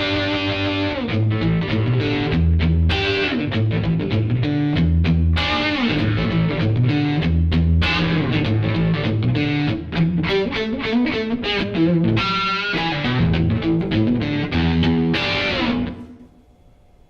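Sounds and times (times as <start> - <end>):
overdriven electric guitar blues: 0.0 - 16.3.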